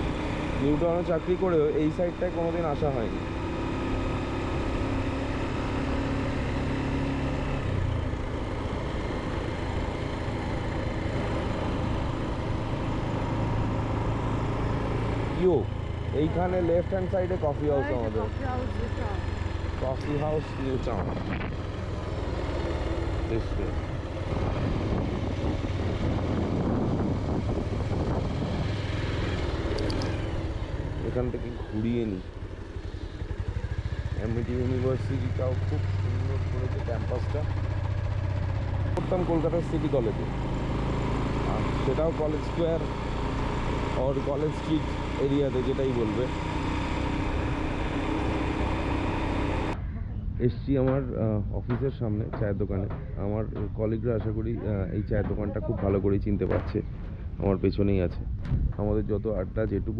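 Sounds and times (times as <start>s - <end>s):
motorcycle engine running: 0.0s - 59.9s
road and wind noise: 0.0s - 59.9s
sharp clicks: 29.6s - 30.2s.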